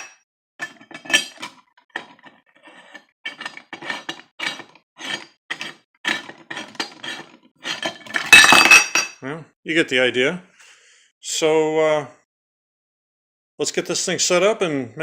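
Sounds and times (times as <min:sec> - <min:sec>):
metal parts clinking: 0:00.6 - 0:09.1.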